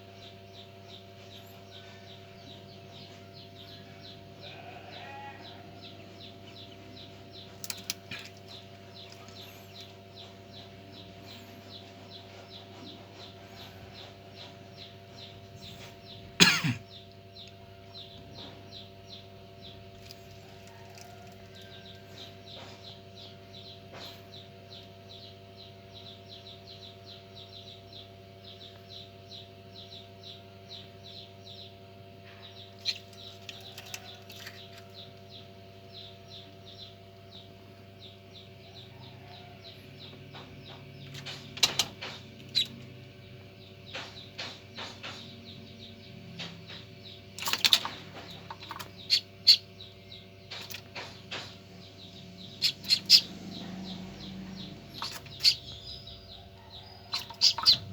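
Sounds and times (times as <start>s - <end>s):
ducklings peeping: 0.0s - 57.9s
egg incubator hum: 0.0s - 57.9s
sharp clicks and knocks: 40.3s - 42.9s, 43.8s - 45.6s, 50.5s - 51.7s.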